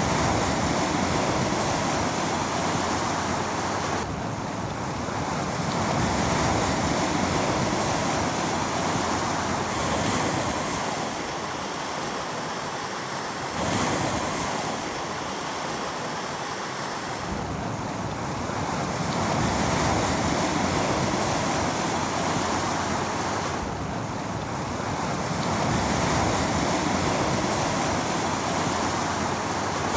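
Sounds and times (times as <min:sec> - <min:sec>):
wind on microphone: 0:00.0 - 0:12.1
small waves washing on beach: 0:00.0 - 0:29.9.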